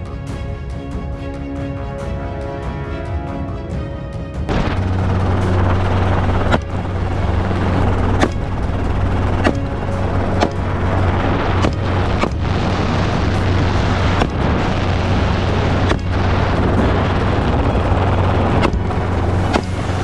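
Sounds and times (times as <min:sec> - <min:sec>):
rushing wind noise: 0:00.0 - 0:20.0
helicopter drone: 0:03.2 - 0:20.0
sharp cracks: 0:04.5 - 0:20.0.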